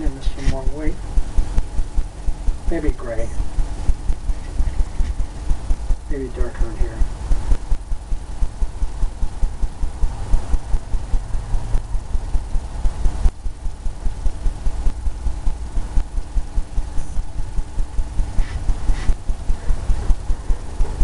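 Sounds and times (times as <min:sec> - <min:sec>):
paintbrush dabbing on canvas: 0:16.8 - 0:21.0.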